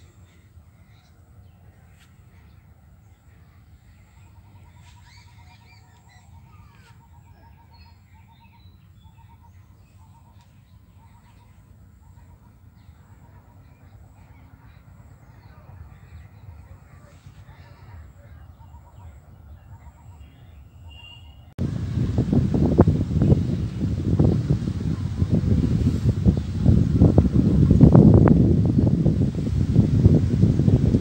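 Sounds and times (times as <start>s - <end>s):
wild birds calling: 0.0s - 21.5s
low steady rumble: 21.4s - 31.0s.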